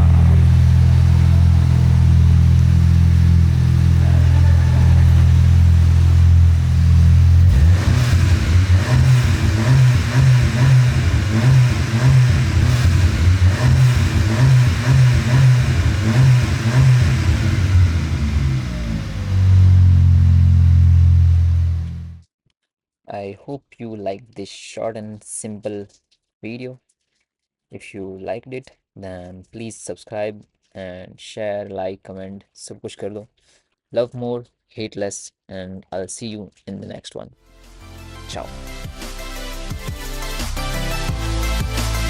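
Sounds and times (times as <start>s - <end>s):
motorcycle engine running loud: 0.0s - 20.4s.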